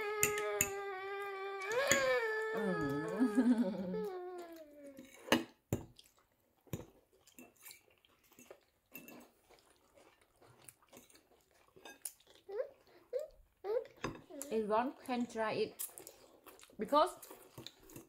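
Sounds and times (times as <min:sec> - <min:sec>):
dishes and cutlery clinking: 0:00.0 - 0:00.9, 0:06.7 - 0:09.4, 0:11.0 - 0:12.2
high-pitched whining cry: 0:00.0 - 0:05.0.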